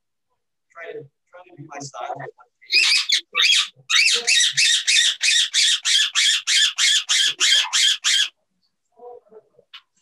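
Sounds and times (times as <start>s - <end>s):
parrot squawking: 2.7s - 8.4s.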